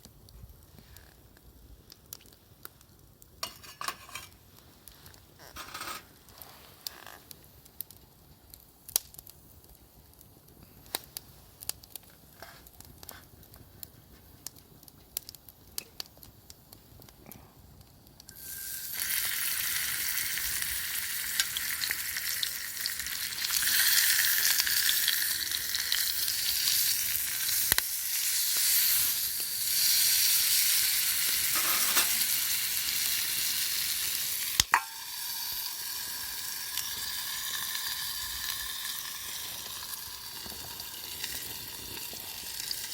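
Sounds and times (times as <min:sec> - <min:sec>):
food sizzling in a hot pan: 0:03.4 - 0:04.4, 0:18.3 - 0:42.9.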